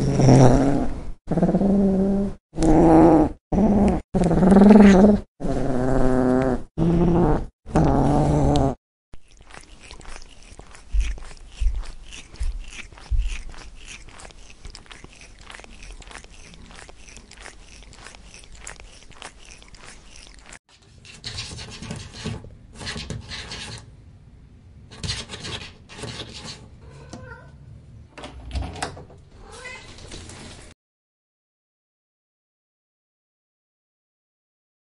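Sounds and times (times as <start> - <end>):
cat growling: 0.0 - 20.6.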